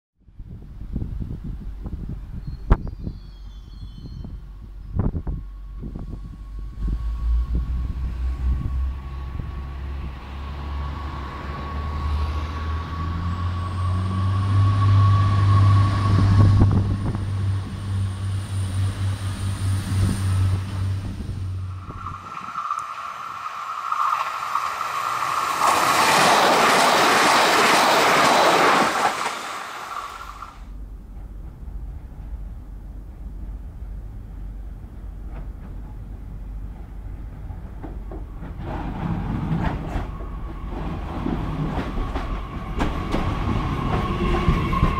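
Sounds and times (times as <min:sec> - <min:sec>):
train passing with drone and whine: 0:03.3 - 0:44.9
loud steady rushing noise: 0:13.9 - 0:30.5.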